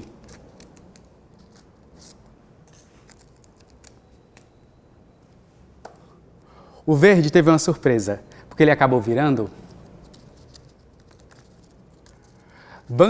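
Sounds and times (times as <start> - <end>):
paper rustling: 9.4 - 12.6.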